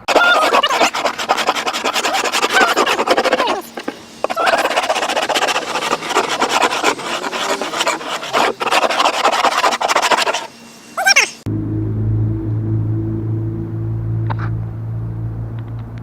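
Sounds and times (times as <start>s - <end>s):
paint scraper rasping: 0.0s - 10.5s.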